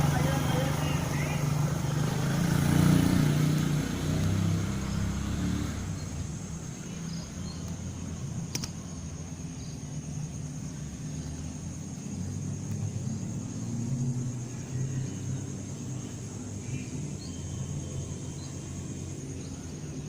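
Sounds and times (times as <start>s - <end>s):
vehicle engine passing by: 0.0s - 8.4s, 10.0s - 20.0s
sharp click: 8.4s - 8.8s.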